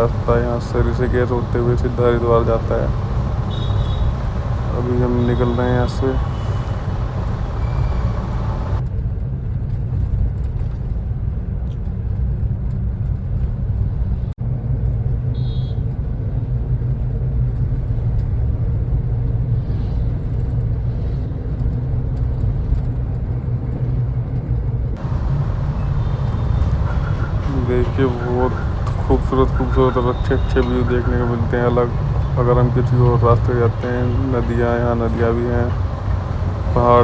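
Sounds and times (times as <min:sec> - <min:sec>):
road noise: 0:00.0 - 0:08.8, 0:24.9 - 0:37.0
vehicle engine rumble: 0:00.0 - 0:08.8, 0:20.2 - 0:37.0.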